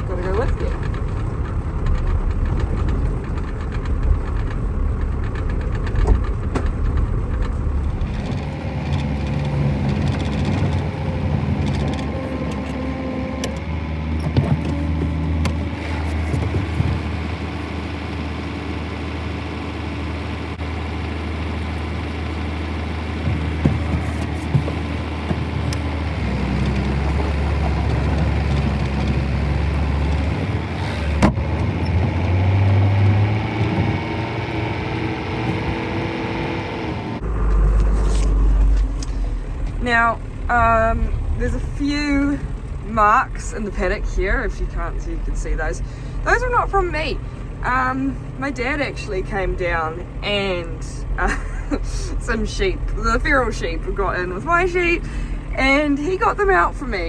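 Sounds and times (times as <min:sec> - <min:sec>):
knocks and rattles: 0:00.0 - 0:17.3, 0:23.0 - 0:34.5
farm vehicle engine running: 0:00.0 - 0:57.0.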